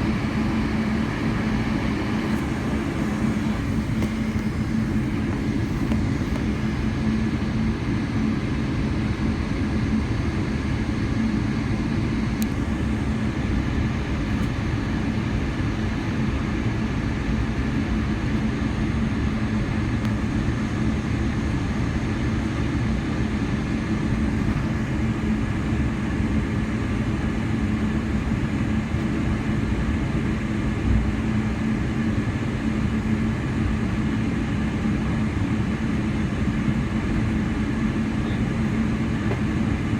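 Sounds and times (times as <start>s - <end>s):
airplane cabin engine hum: 0.0s - 39.9s.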